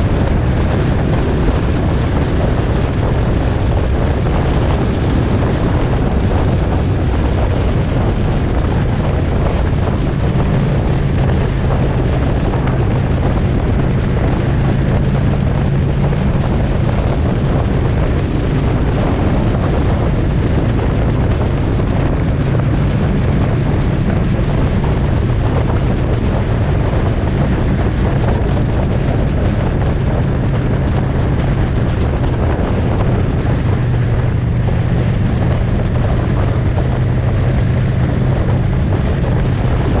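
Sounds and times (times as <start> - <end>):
motorcycle engine cruising: 0.0 - 40.0
wind rushing over microphone: 0.0 - 40.0.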